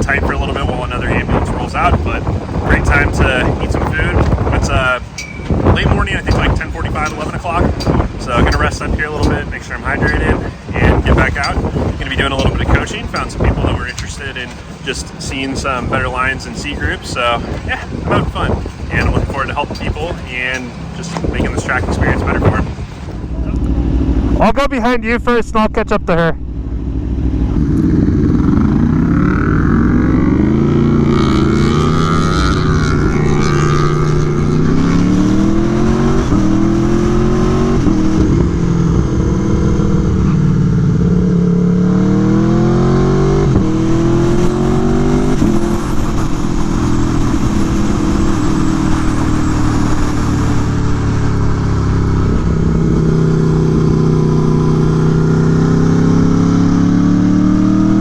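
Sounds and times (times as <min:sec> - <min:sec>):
motorcycle engine accelerating: 0:00.0 - 0:24.6, 0:26.4 - 0:58.0.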